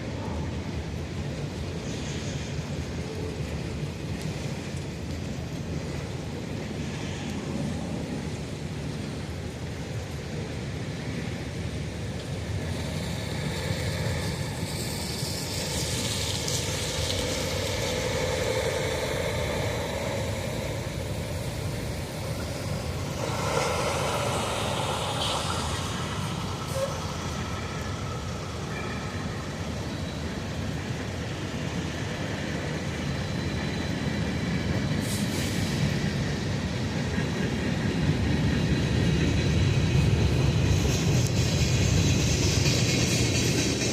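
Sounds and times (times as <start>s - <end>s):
diesel locomotives rumbling: 0.0s - 43.9s.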